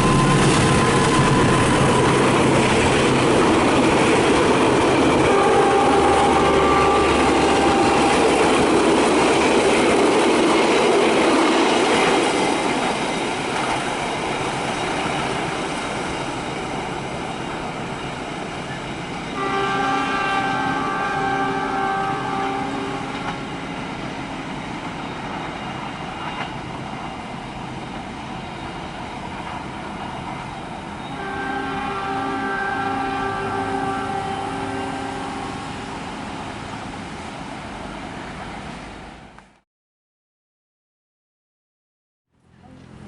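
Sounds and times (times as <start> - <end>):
train horn: 5.2 - 9.1, 19.3 - 23.4, 31.0 - 35.8
train wheels clattering on rails: 23.1 - 31.1.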